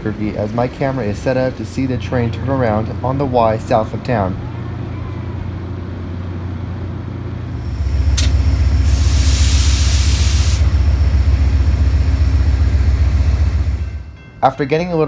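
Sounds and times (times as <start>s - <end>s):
diesel locomotive engine drone: 0.0s - 14.8s
loud hiss of air: 7.5s - 12.6s
sharp click: 8.2s - 8.4s.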